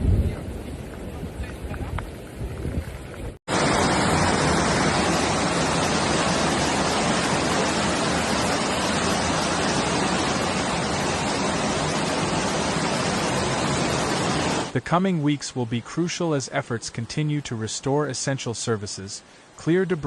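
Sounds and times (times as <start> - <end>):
storm rushing noise: 0.0 - 14.8.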